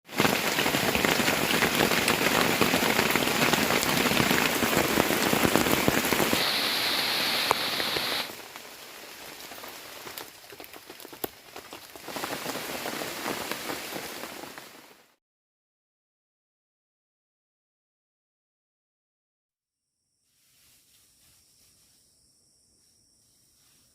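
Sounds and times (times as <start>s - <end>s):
heavy rain falling: 0.0s - 15.2s
high steady hiss: 0.2s - 10.1s, 20.0s - 23.9s.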